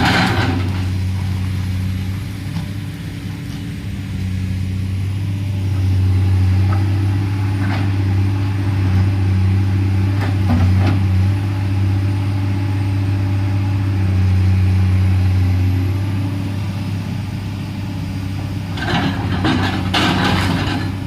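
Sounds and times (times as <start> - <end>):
excavator diesel engine running: 0.0 - 21.0
clattering and scraping: 18.8 - 21.0.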